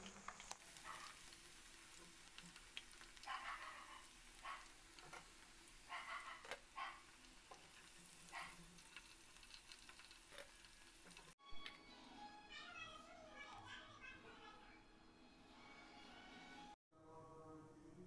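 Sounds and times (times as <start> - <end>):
food sizzling in oil: 0.0 - 11.7.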